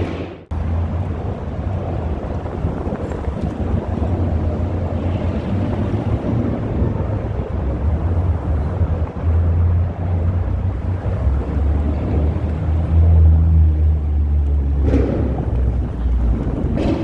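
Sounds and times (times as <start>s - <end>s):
car engines rumbling: 0.0s - 17.0s.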